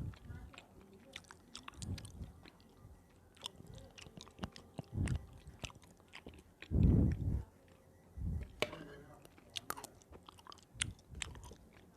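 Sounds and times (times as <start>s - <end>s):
wet mouth clicks: 0.0s - 2.8s, 3.4s - 7.4s, 9.3s - 11.9s
chewing sticky food: 0.0s - 11.9s.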